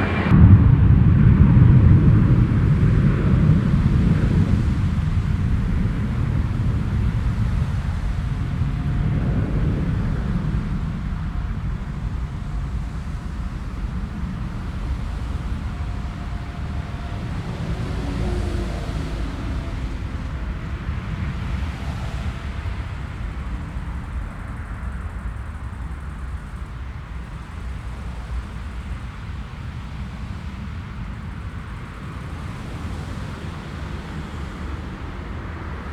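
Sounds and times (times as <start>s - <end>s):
jet engines rumbling: 0.0s - 35.9s
wind buffeting microphone: 0.0s - 35.9s.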